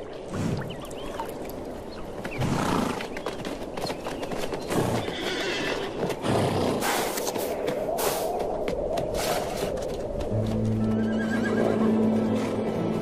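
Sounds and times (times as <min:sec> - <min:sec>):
hooves clip-clopping on hard ground: 0:00.4 - 0:13.0
horses neighing: 0:04.7 - 0:07.2, 0:10.9 - 0:12.5.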